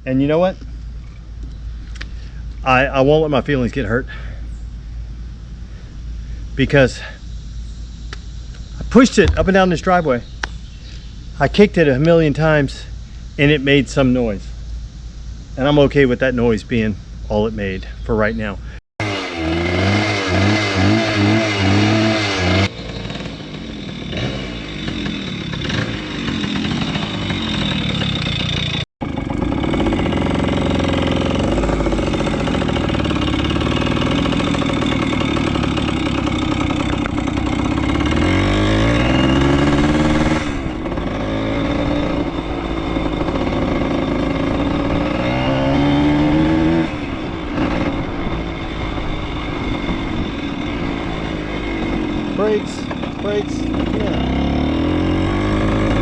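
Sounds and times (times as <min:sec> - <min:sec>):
small motorcycle engine accelerating: 0:09.0 - 0:10.3, 0:19.0 - 0:56.0.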